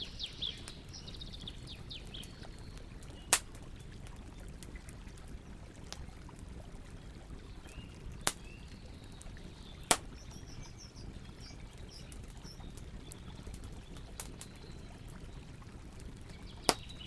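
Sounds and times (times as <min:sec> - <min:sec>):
birds chirping: 0:00.0 - 0:04.5, 0:07.5 - 0:17.0
campfire crackling: 0:00.0 - 0:17.0
sharp pops from fire: 0:02.0 - 0:04.8, 0:08.1 - 0:08.6, 0:09.2 - 0:10.6, 0:11.5 - 0:14.6, 0:16.6 - 0:17.0.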